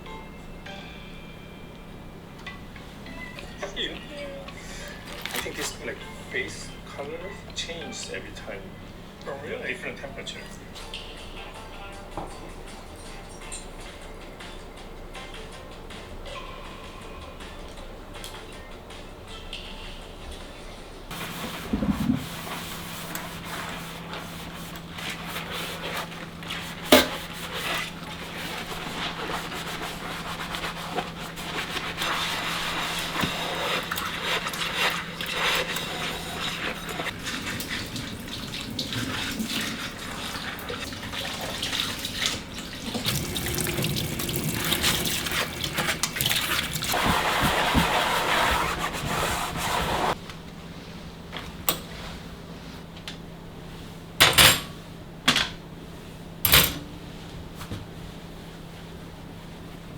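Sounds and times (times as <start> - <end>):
tap water running into sink: 32.2 - 47.9.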